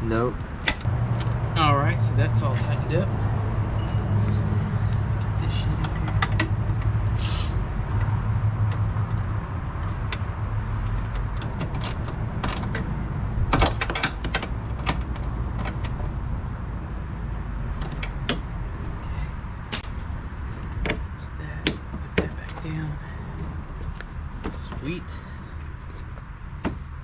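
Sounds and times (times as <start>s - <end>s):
metallic clicks and knocks: 13.5s - 16.0s.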